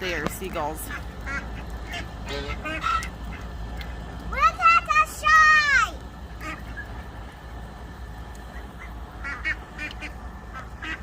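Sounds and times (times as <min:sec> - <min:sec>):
low steady rumble: 0:00.0 - 0:11.0
faint honk-like bird calls: 0:00.8 - 0:03.5, 0:06.4 - 0:07.1.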